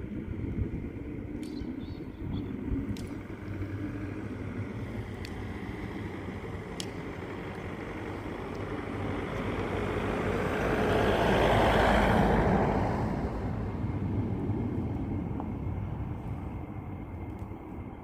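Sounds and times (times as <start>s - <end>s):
vehicle passing by: 0.0s - 18.0s.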